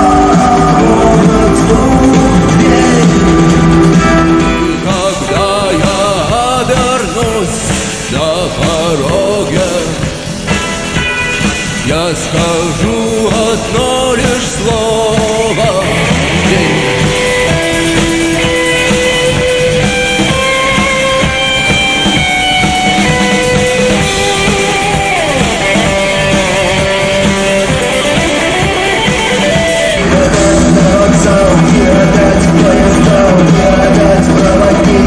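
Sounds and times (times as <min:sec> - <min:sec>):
bass guitar: 0:00.0 - 0:35.0
drum kit beat: 0:00.0 - 0:35.0
lead guitar melody: 0:10.1 - 0:12.5, 0:15.5 - 0:31.4.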